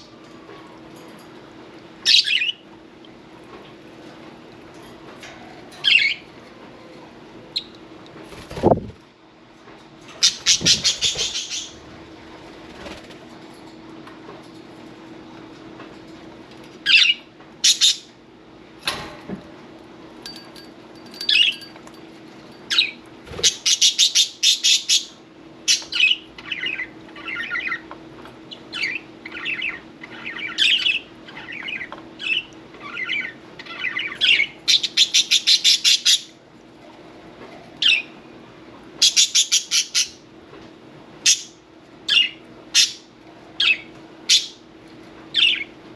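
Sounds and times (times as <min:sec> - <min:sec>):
budgerigars chirping and calling: 0:02.1 - 0:02.6, 0:10.2 - 0:11.8, 0:22.7 - 0:27.8, 0:28.5 - 0:36.3, 0:39.0 - 0:40.2, 0:41.3 - 0:43.0, 0:45.4 - 0:45.7.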